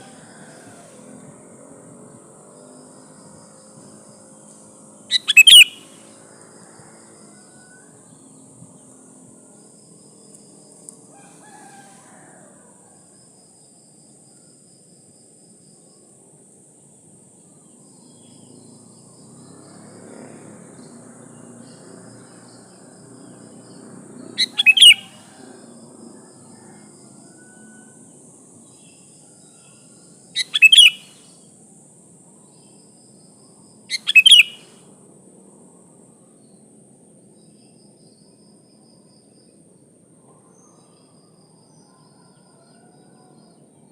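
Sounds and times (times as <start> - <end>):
high insect-like hiss: 0.0 - 39.6
bird sharp double-note calls: 5.1 - 5.9, 24.4 - 25.1, 30.4 - 31.1, 33.9 - 34.6.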